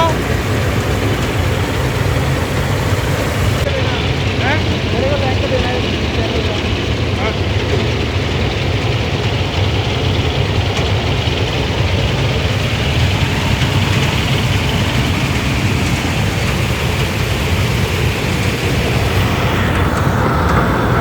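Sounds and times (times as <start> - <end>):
broad hiss: 0.0 - 3.7
diesel engine rumbling: 0.0 - 21.0.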